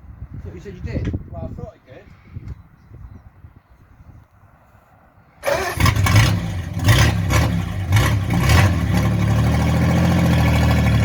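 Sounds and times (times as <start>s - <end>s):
car engine starting and revving: 5.4s - 11.0s.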